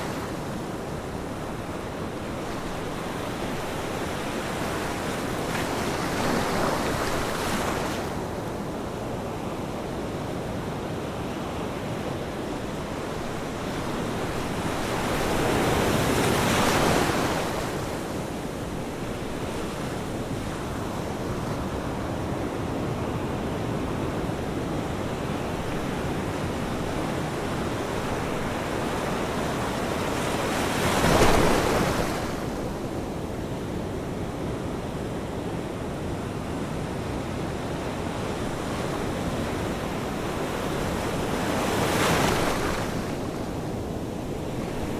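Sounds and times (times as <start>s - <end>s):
ocean waves washing: 11.1s - 44.9s.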